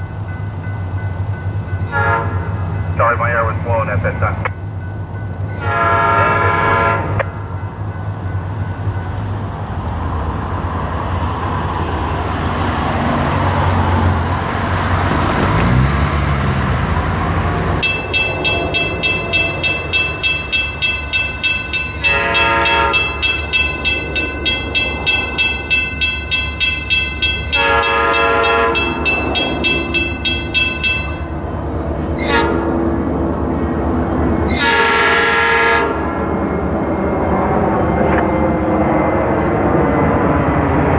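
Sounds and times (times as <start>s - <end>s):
diesel locomotive engine rumble: 0.0s - 40.9s
train horn blasts: 1.8s - 2.8s, 5.6s - 7.6s, 22.0s - 23.5s, 27.5s - 31.2s, 32.2s - 33.1s, 34.5s - 36.3s
bell ringing rapidly: 17.8s - 31.2s.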